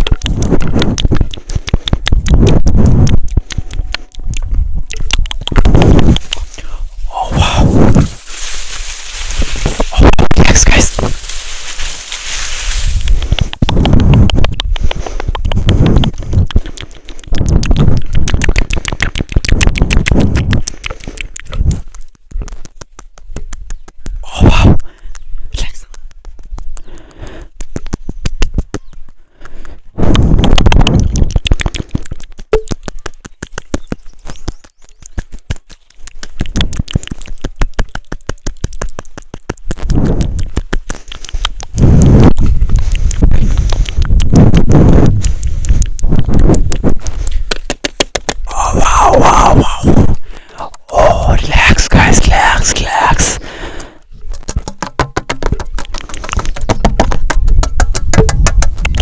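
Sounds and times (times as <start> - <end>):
typing on keys: 0.0 - 6.5, 13.0 - 24.2, 24.8 - 41.8
low rumbling noise: 0.0 - 18.8, 41.7 - 47.3, 48.5 - 53.8.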